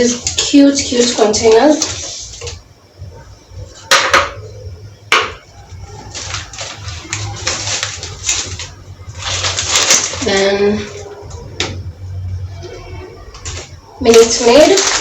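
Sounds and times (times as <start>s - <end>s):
plastic rustling and knocking: 3.8s - 4.4s, 5.1s - 11.8s.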